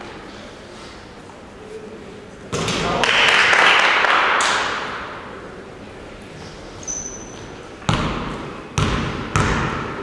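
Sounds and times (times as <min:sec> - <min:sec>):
faint high squeak: 0:06.4 - 0:07.5
basketball bouncing on gym floor: 0:07.8 - 0:10.0.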